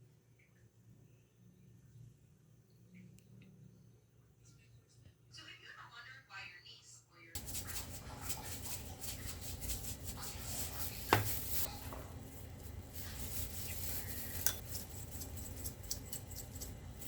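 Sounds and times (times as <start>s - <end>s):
kitchen utensils clinking: 11.0s - 17.0s.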